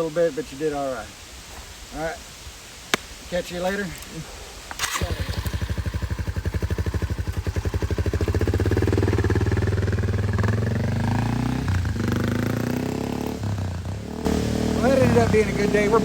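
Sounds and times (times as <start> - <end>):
motorcycle engine running: 4.8 - 16.0.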